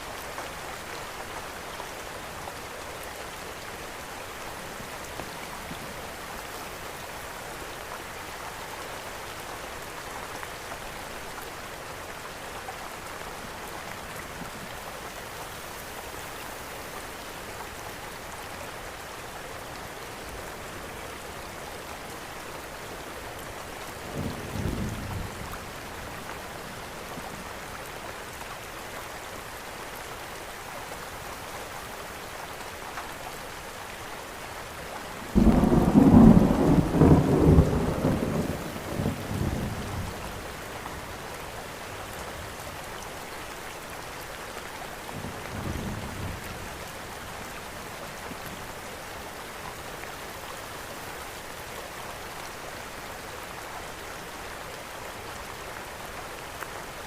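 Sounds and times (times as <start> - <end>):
steady rain falling: 0.0 - 57.0
low rumble of thunder: 35.3 - 40.4.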